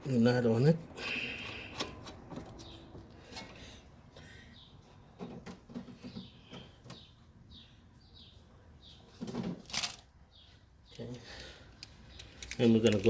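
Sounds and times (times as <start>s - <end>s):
small birds chirping: 2.4s - 9.4s, 10.2s - 13.0s.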